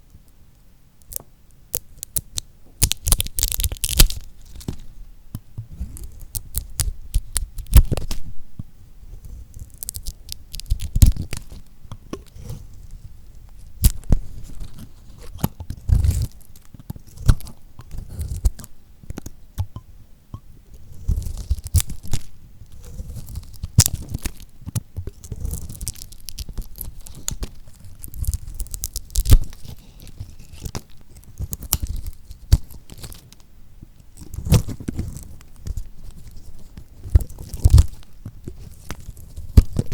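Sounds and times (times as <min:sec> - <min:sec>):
knife cutting crackling soap: 0:01.8 - 0:08.2, 0:09.2 - 0:19.7, 0:20.8 - 0:39.9.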